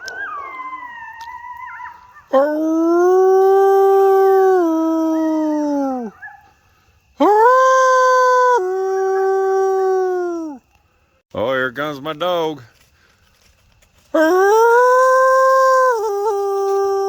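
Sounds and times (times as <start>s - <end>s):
dog howling: 0.0s - 6.5s.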